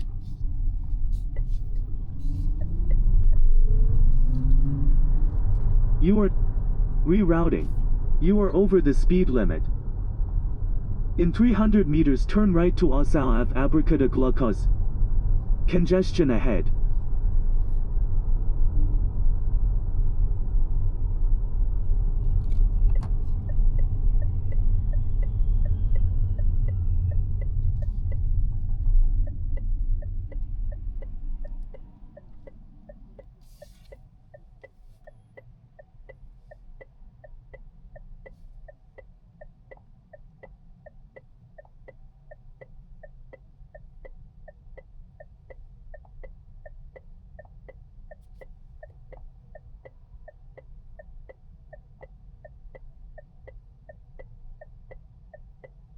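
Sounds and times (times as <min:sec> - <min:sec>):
turn signal ticking: 0:00.0 - 0:09.7, 0:22.0 - 0:55.9
tyre and road rumble: 0:00.0 - 0:34.0.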